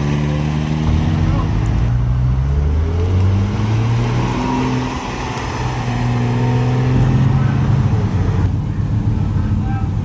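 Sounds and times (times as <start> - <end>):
car engine running at low revs: 5.0 - 10.0.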